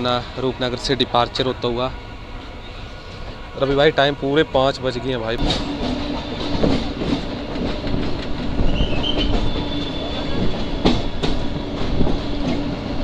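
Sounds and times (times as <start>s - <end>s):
train rumbling on rails: 0.0s - 13.0s
wheels clacking over rail joints: 5.4s - 12.8s.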